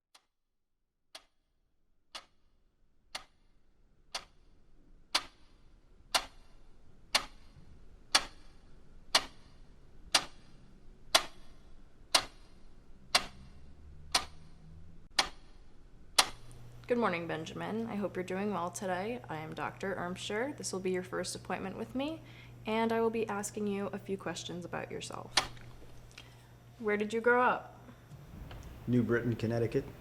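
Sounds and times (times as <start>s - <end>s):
clock ticking: 1.1s - 1.4s, 2.1s - 2.5s, 3.1s - 3.5s, 4.1s - 4.4s, 5.1s - 16.6s, 25.3s - 25.8s
faint low hum: 3.6s - 30.0s.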